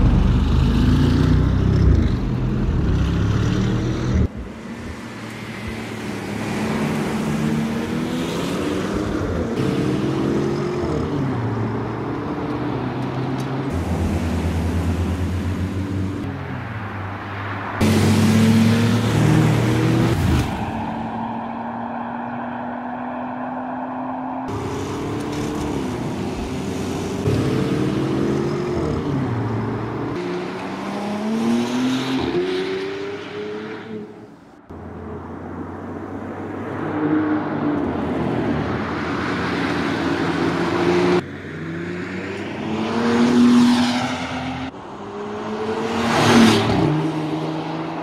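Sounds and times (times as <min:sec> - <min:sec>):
car passing by: 0:38.2 - 0:48.0.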